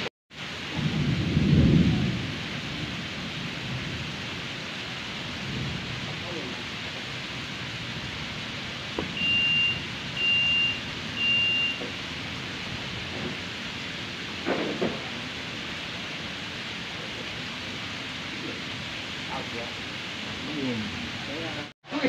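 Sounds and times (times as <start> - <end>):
rain falling on a pond: 0.0 - 22.0
short high electronic beeps: 9.2 - 11.8.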